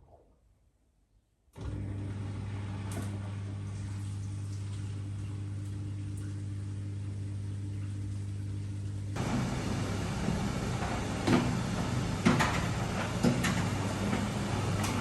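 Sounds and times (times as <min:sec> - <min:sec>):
washing machine electrical hum: 0:01.5 - 0:15.0.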